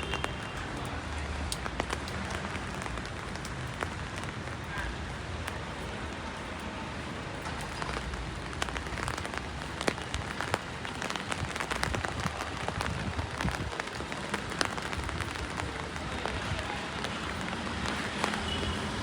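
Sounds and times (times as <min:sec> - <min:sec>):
rain on hard surfaces: 0:00.0 - 0:19.0.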